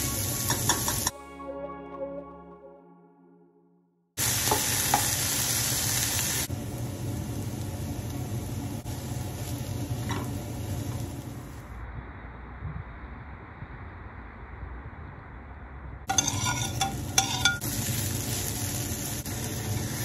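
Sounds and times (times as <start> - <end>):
vegetables sizzling in frying pan: 0.0 - 1.1, 4.2 - 11.6, 16.1 - 20.0
loud hiss of water in pan: 4.2 - 11.7, 17.4 - 20.0.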